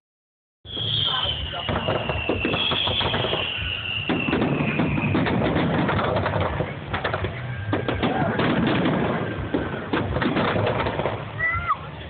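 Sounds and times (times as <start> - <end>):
firework whistle falling in pitch: 0.7 - 6.2
firework crackling pops: 0.7 - 11.8.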